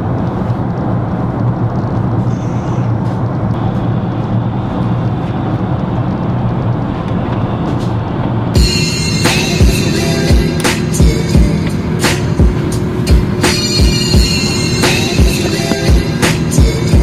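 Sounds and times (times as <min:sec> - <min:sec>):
constant low hum: 0:00.0 - 0:17.0
jet airliner cabin roar: 0:00.0 - 0:17.0.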